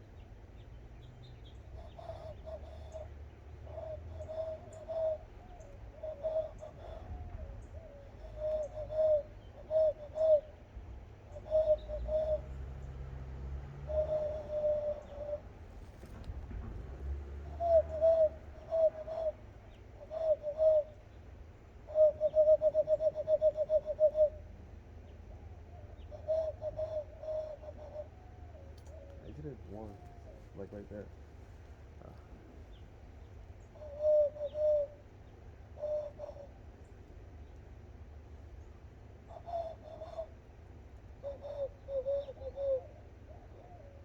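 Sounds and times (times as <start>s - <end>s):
person whistling bird calls: 8.1s - 10.6s.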